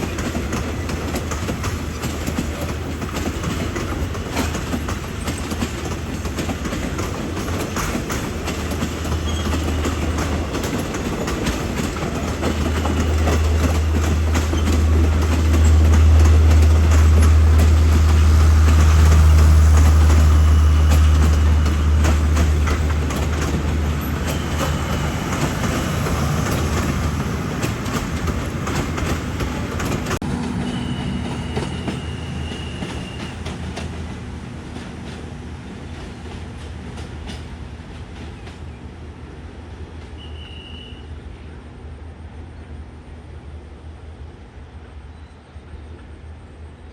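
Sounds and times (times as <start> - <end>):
train wheels clacking over rail joints: 0.0 - 38.8
train engine drone: 0.0 - 46.9.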